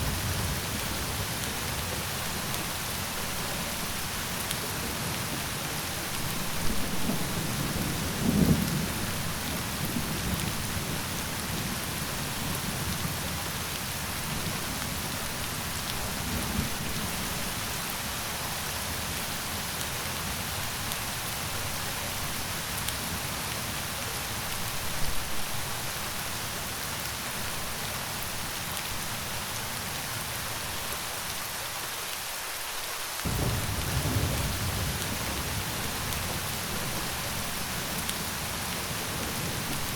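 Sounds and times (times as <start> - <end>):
steady rain: 0.0 - 39.9
low rolls of thunder: 6.2 - 14.6, 33.2 - 39.9.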